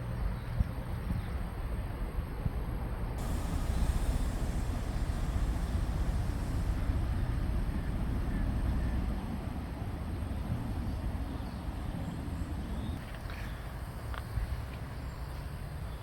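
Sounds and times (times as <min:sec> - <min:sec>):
locomotive hiss: 0:03.2 - 0:12.6
locomotive rumbling: 0:03.2 - 0:13.0.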